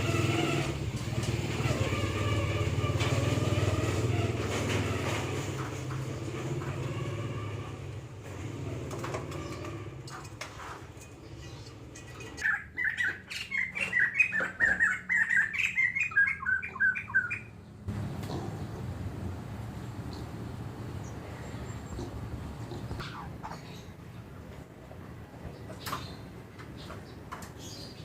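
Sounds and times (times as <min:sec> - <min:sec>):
bird chattering calls: 0:12.4 - 0:17.6, 0:21.4 - 0:24.0.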